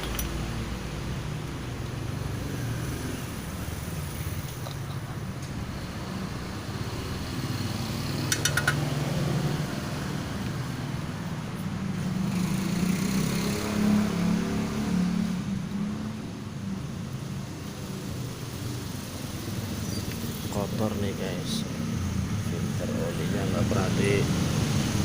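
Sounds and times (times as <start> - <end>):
vehicle engine humming: 0.0 - 25.0
sharp metallic clicks: 8.2 - 8.9.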